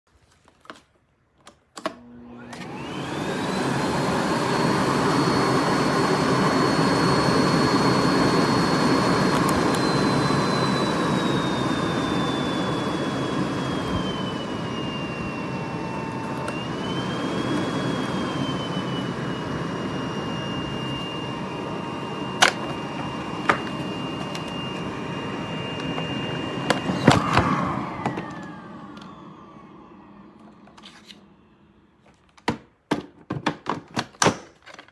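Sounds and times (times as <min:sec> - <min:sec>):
vacuum cleaner motor whining: 0:01.8 - 0:32.6.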